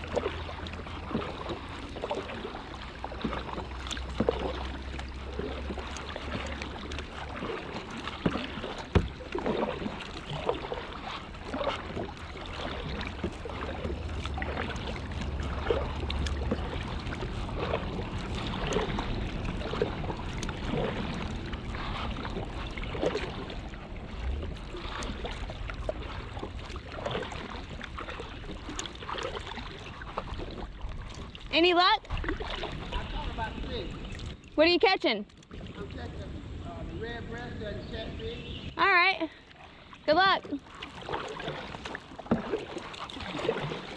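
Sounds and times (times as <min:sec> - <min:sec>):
paddle splashing in water: 0:00.0 - 0:43.9
water dripping: 0:11.4 - 0:21.5.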